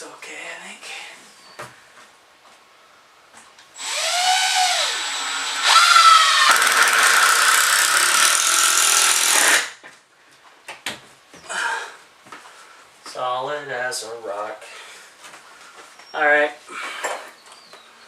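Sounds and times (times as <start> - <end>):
power drill driving a screw: 3.8 - 9.8.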